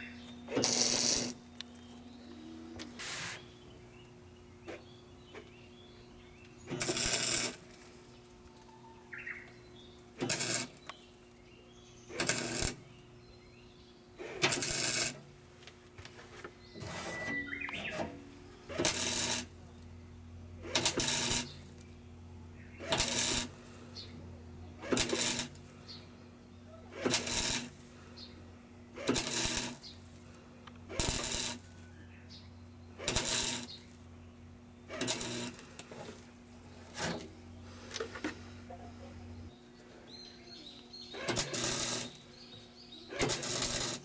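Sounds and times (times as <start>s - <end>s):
low hum: 0.0s - 6.4s
welding crackle: 0.5s - 1.9s, 6.6s - 8.0s, 10.2s - 11.4s, 12.1s - 13.0s, 14.2s - 15.2s, 18.7s - 19.6s, 20.6s - 21.9s, 22.8s - 23.7s, 24.8s - 25.8s, 26.9s - 27.9s, 29.0s - 31.8s, 33.0s - 34.1s, 34.9s - 35.9s, 41.2s - 42.3s, 43.1s - 44.0s.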